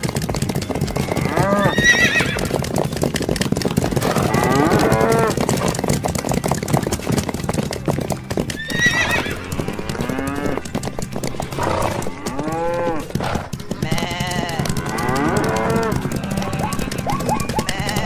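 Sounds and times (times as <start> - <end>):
hooves drumming: 0.0 - 18.0
loud animal calls: 11.5 - 18.0.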